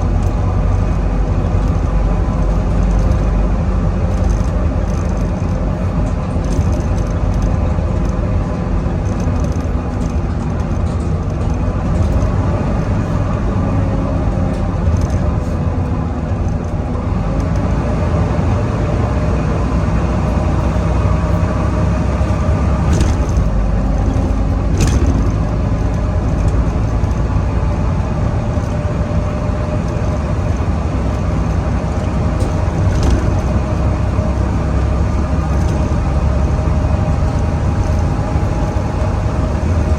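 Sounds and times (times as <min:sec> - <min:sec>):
bus diesel engine running: 0:00.0 - 0:39.9
engine whine: 0:00.0 - 0:39.9
sharp clicks or knocks: 0:22.8 - 0:27.3.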